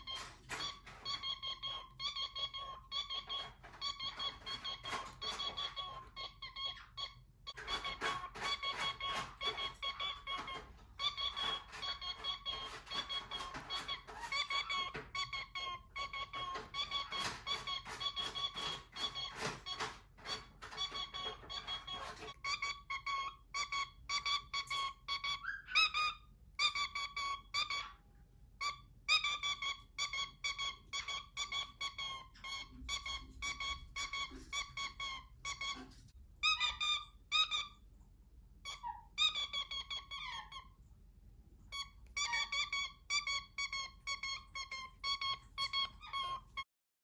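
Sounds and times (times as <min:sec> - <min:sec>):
cockatiel whistling: 0:00.0 - 0:28.0, 0:28.6 - 0:37.8, 0:38.6 - 0:40.6, 0:41.7 - 0:46.6.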